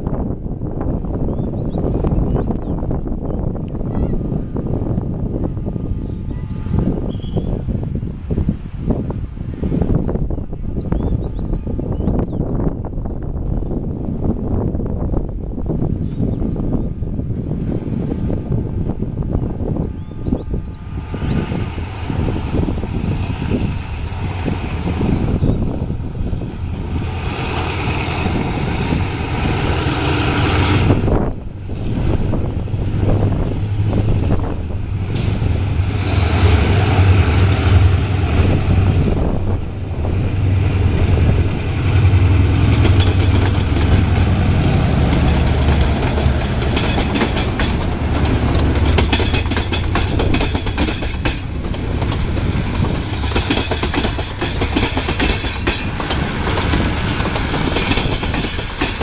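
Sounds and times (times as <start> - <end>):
train low drone: 0.0 - 10.6, 16.9 - 59.0
wheels clicking over rail joints: 38.8 - 59.0.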